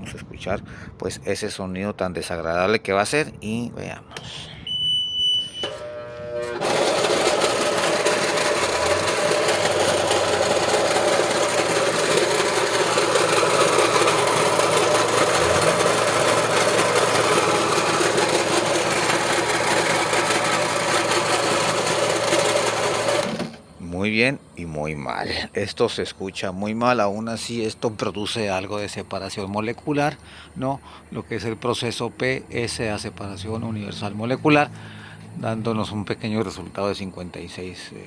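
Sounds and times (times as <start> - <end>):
compressor running with loud noise: 5.5 - 24.6.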